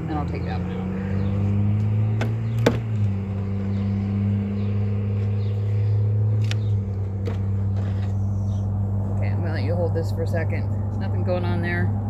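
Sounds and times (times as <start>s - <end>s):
hive frames and tools knocking: 2.1s - 3.2s.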